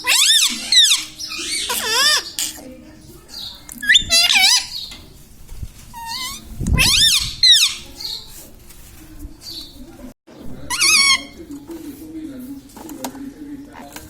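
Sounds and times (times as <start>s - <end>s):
parrot warbling calls: 0.0s - 2.6s, 3.8s - 4.8s, 6.0s - 7.9s, 10.6s - 11.4s.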